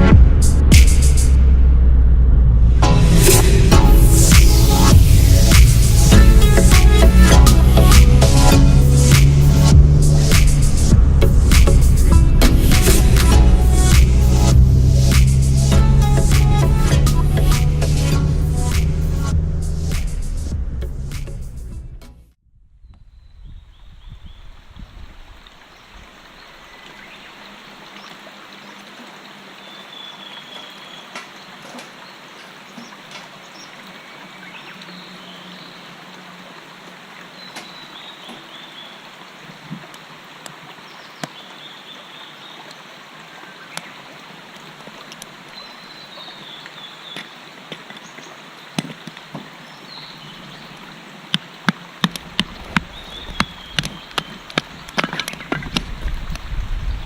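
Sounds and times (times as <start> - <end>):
stream babbling: 0.0 - 20.5, 24.4 - 57.0.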